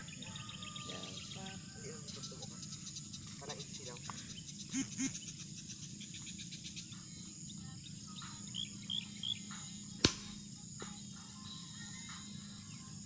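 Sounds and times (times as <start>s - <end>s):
bird chirps: 0.0s - 10.0s
crickets chirring: 0.0s - 13.0s
clapperboard snap: 10.0s - 10.4s.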